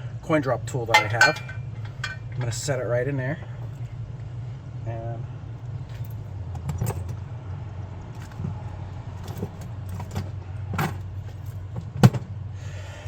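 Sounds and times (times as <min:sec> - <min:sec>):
steady low hum: 0:00.0 - 0:13.0
metal tools clinking: 0:00.9 - 0:02.8.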